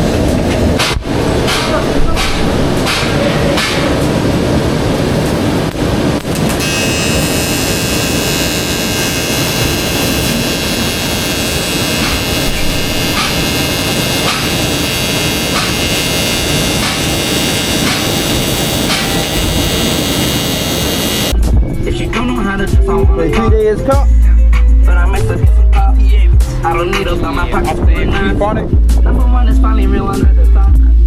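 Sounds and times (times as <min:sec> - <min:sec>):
steady whine: 0:00.0 - 0:31.0
welding arc crackling hiss: 0:05.1 - 0:21.4.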